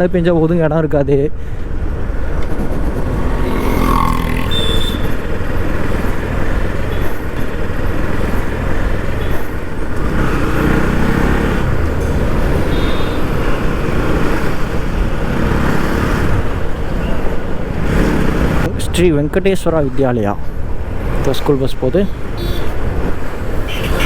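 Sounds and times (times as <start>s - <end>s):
wind rush on microphone: 1.5s - 5.6s
motorcycle engine: 1.8s - 18.9s.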